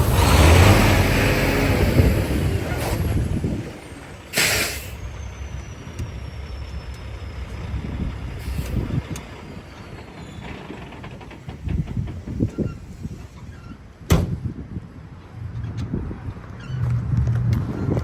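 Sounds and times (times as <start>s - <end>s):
diesel truck engine rumbling: 0.0s - 18.0s
air brake hiss: 0.1s - 5.2s, 8.4s - 9.1s.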